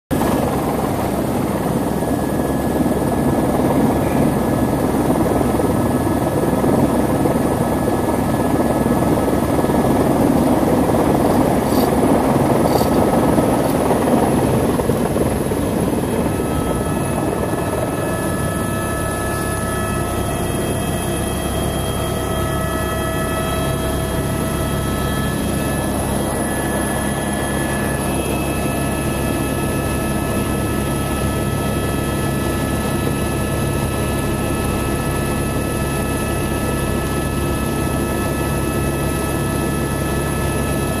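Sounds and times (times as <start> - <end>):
helicopter rotor and engine: 0.1 - 41.0.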